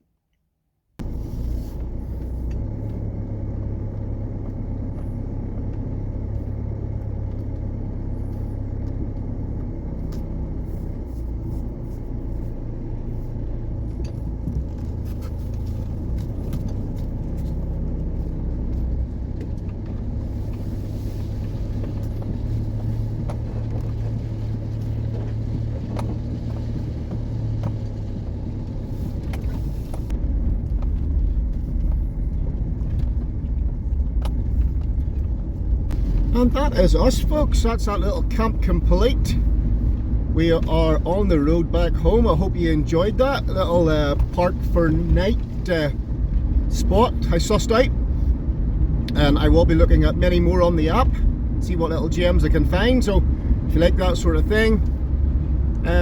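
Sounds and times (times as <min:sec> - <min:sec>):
car engine and road rumble: 0:00.8 - 0:56.0.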